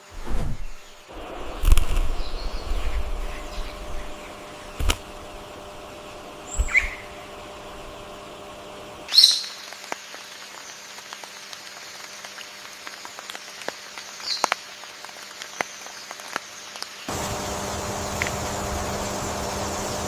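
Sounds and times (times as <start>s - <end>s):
steady hiss: 0.0s - 20.0s
bird calling: 0.6s - 8.2s, 9.1s - 10.7s.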